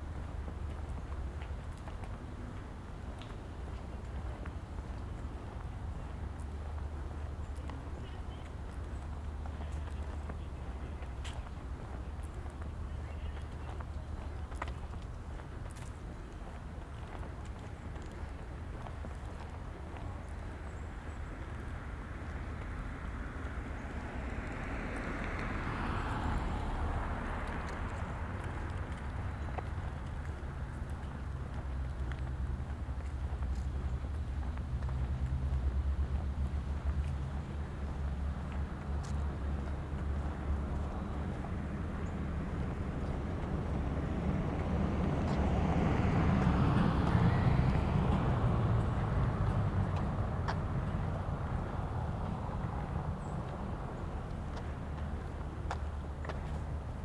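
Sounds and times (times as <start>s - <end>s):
low rumble of traffic: 0.0s - 57.0s
car passing: 18.2s - 57.0s.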